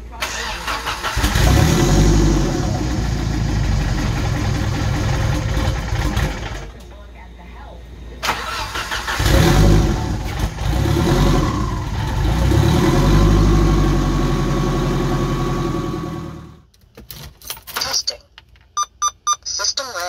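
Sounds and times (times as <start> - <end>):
car engine revving unevenly: 0.7 - 6.6, 9.0 - 16.6.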